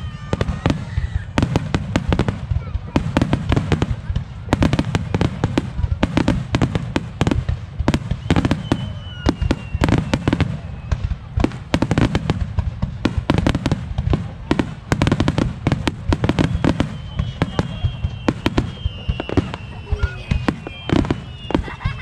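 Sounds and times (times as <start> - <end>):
fireworks bangs: 0.0 - 22.0
high firework whistle: 7.9 - 11.3, 16.1 - 22.0.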